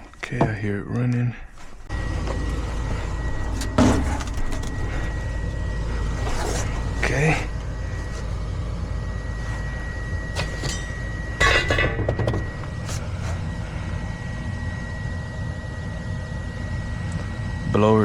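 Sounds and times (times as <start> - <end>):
furnace motor humming and whining: 0.0 - 18.0.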